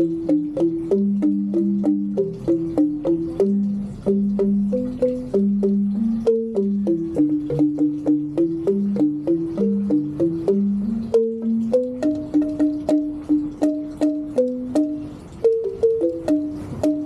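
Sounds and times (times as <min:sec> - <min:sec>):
bamboo xylophone played with mallets: 0:00.0 - 0:17.0.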